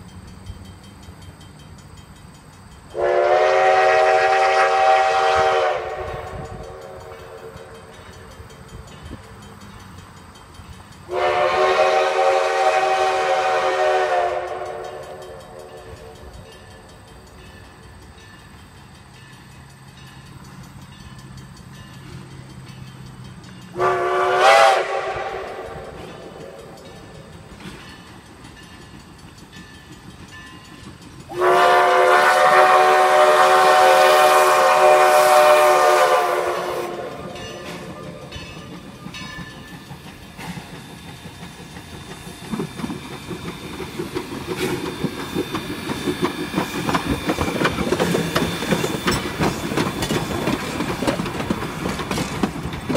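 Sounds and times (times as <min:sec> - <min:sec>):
train rhythmic clatter: 0:00.0 - 0:52.9
locomotive whistle blasts: 0:02.9 - 0:07.8, 0:11.1 - 0:16.3, 0:23.7 - 0:26.8, 0:31.3 - 0:38.4.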